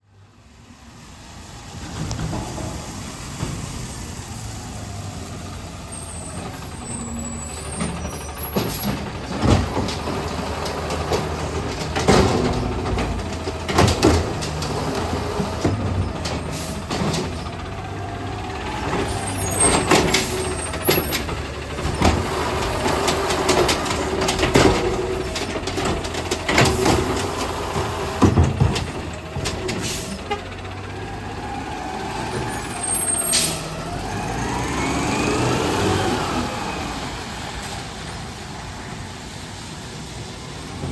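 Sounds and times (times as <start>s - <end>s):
garbage truck engine running: 1.0s - 40.9s
carts slamming into hopper: 6.6s - 30.5s
air brakes hissing: 16.4s - 17.4s, 29.8s - 30.4s, 32.6s - 33.8s.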